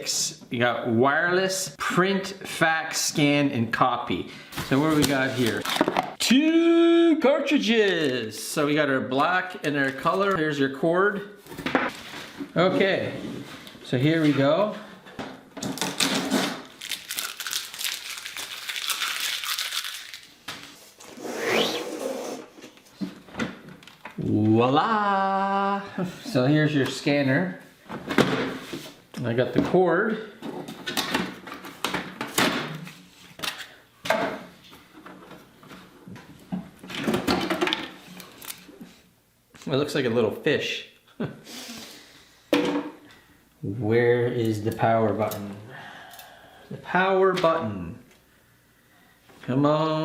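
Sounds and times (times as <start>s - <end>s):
packaging crinkling and rustling: 4.6s - 6.2s, 15.7s - 20.8s, 38.0s - 38.7s.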